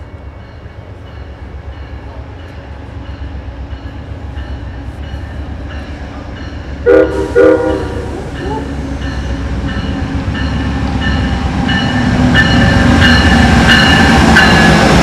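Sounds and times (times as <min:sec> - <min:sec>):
train rumbling: 0:00.0 - 0:15.0
train horn blasts: 0:06.8 - 0:08.8.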